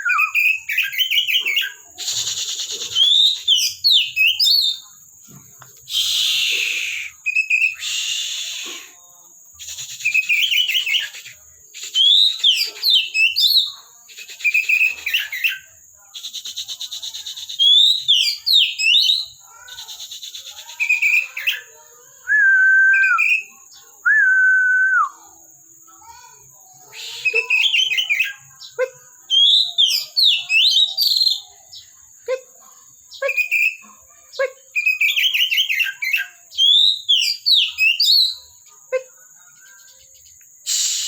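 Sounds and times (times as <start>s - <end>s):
magpie-robin singing whistled phrases: 0.0s - 4.8s, 5.9s - 9.0s, 9.6s - 21.7s, 22.3s - 25.3s, 26.9s - 31.9s, 33.1s - 38.5s
long low steady whistles: 5.9s - 9.0s, 40.6s - 41.0s.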